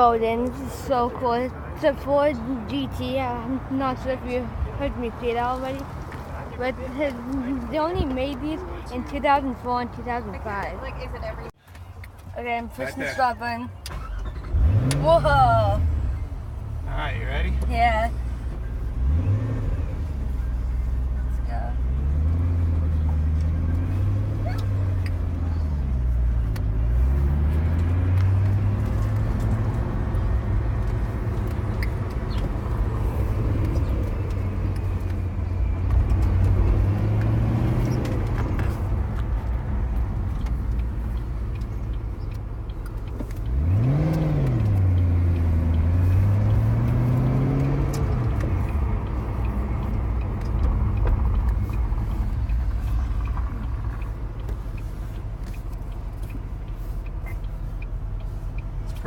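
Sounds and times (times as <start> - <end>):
car engine revving while driving: 12.5 - 59.0.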